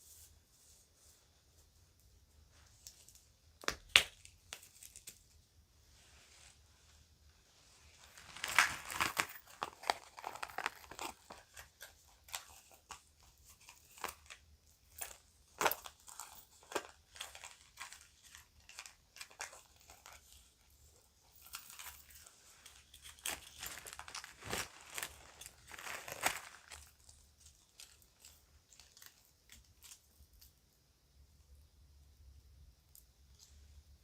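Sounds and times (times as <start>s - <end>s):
plastic bag crinkling: 7.9s - 14.4s, 21.4s - 30.0s.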